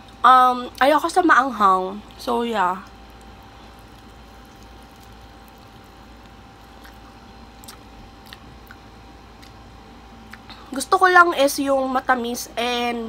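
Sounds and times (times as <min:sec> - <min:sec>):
chewing: 0:02.8 - 0:08.8.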